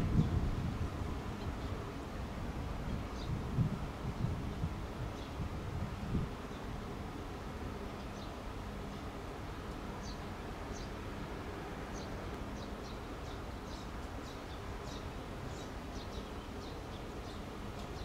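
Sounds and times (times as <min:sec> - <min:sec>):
small birds chirping: 0:02.8 - 0:03.4, 0:04.6 - 0:05.4, 0:07.8 - 0:09.2, 0:09.9 - 0:11.0, 0:11.9 - 0:18.0.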